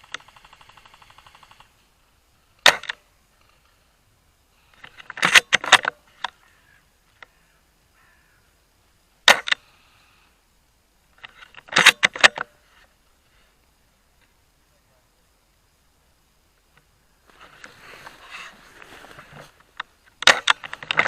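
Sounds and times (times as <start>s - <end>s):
airsoft gunfire pops: 2.6s - 3.0s.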